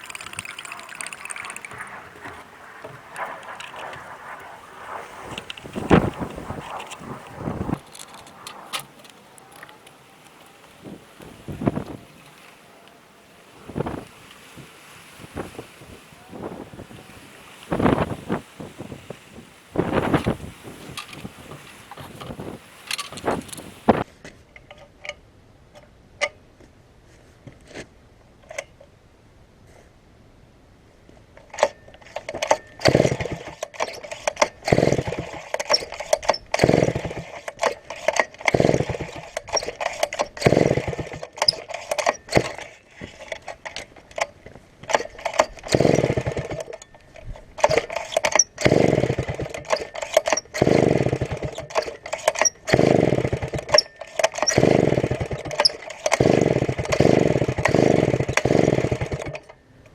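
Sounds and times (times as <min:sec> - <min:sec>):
chainsaw starter cord pulls: 0:00.0 - 0:04.1, 0:05.2 - 0:12.6, 0:19.8 - 0:25.0, 0:31.4 - 0:59.9
chainsaw engine turning over: 0:00.0 - 0:24.1, 0:31.4 - 0:59.9.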